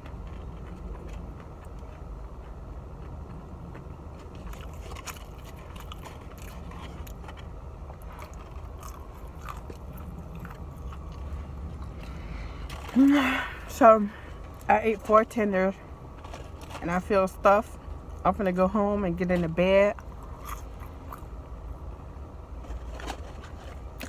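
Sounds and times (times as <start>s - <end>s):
person chewing with lip smacking: 0.0s - 13.0s, 20.0s - 21.4s
low steady hum: 0.0s - 24.0s.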